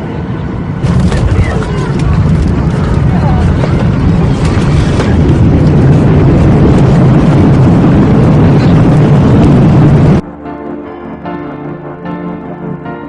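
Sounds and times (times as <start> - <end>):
jet engine roar: 0.0 - 10.3
soft piano music: 10.2 - 13.0.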